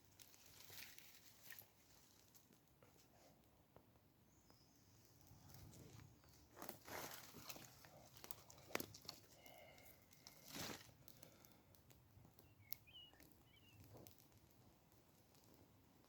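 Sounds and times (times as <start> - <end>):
faint high chirps: 12.4 - 13.9.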